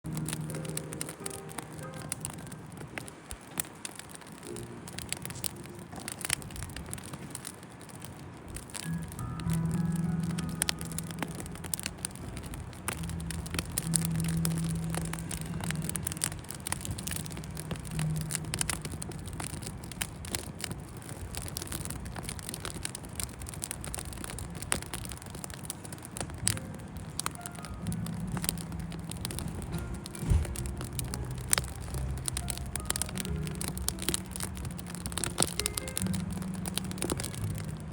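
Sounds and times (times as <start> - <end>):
campfire crackling and popping: 0.0 - 37.9
low steady hum: 4.4 - 37.9.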